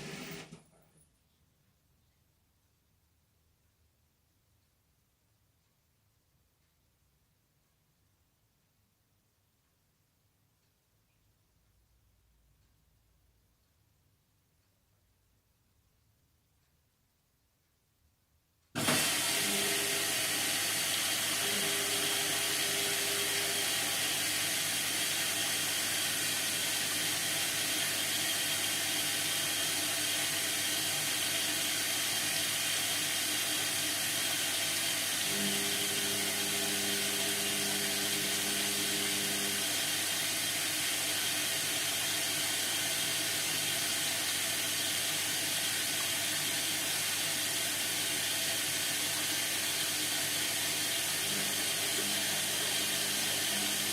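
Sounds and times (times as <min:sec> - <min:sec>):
washing machine hiss: 0:00.0 - 0:00.6, 0:18.8 - 0:53.9
washing machine low hum: 0:18.8 - 0:53.9.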